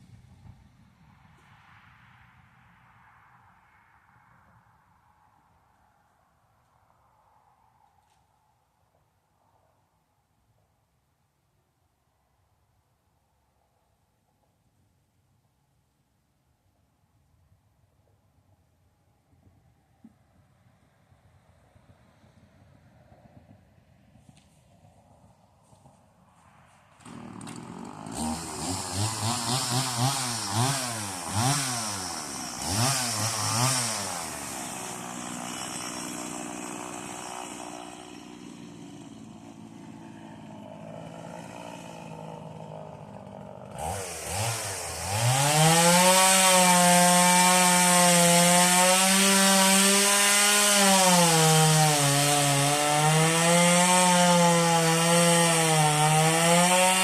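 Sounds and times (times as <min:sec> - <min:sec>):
chainsaw cutting wood: 0:26.9 - 0:57.0
chainsaw revving and idling: 0:26.9 - 0:57.0.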